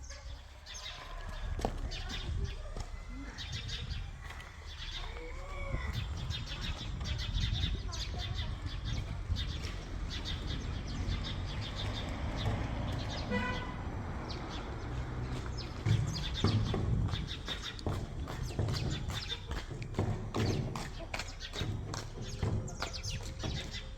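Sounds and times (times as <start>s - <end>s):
small birds chirping: 0.0s - 23.9s
steady low rumble: 0.8s - 13.3s.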